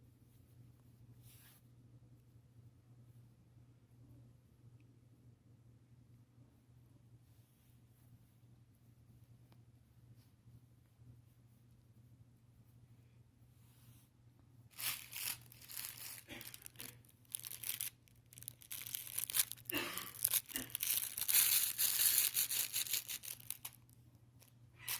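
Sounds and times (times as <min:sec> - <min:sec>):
fabric rustling and scraping: 0:14.7 - 0:23.8.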